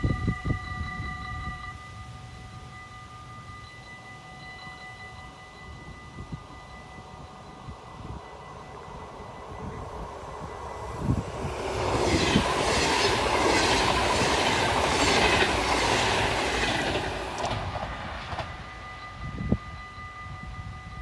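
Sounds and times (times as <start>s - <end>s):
train passing with rumble: 0.0s - 21.0s
wheels clacking over rail joints: 11.3s - 18.6s.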